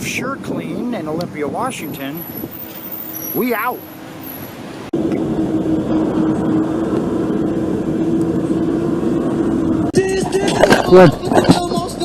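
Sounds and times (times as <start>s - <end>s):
street background: 0.0s - 12.0s
vehicle engine running: 4.9s - 12.0s.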